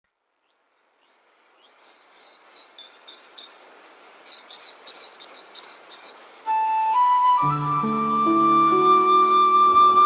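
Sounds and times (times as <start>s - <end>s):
steady outdoor hiss: 0.0s - 10.0s
small bird chirping: 0.4s - 3.6s, 4.2s - 6.2s.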